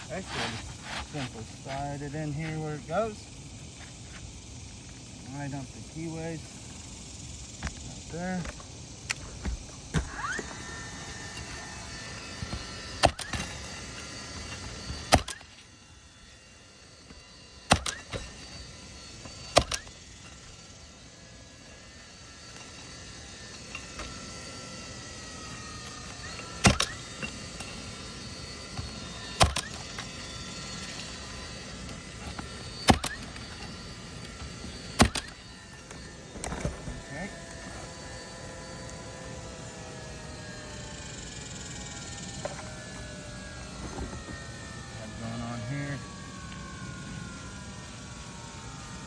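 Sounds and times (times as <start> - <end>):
nail gun shots: 13.0 - 13.5, 15.1 - 15.6, 17.7 - 18.4, 19.5 - 20.0, 26.1 - 27.7, 28.8 - 29.9, 32.8 - 33.4, 35.0 - 35.4.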